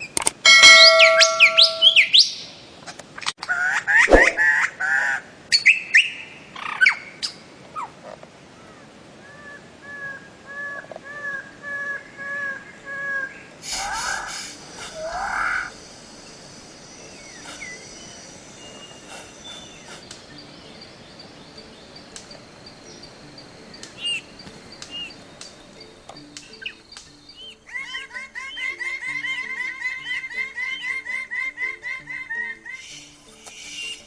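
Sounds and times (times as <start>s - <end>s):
bird chirps: 0.5s - 2.5s, 12.4s - 34.0s
faint background hiss: 4.1s - 34.0s.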